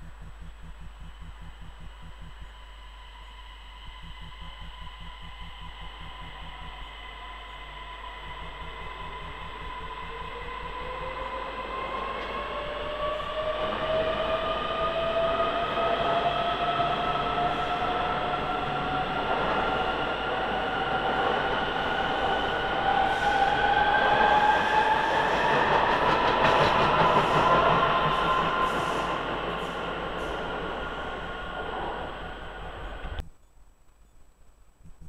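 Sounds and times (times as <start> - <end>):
two-tone rising whine: 0.0 - 33.4
train accelerating past: 6.9 - 33.2.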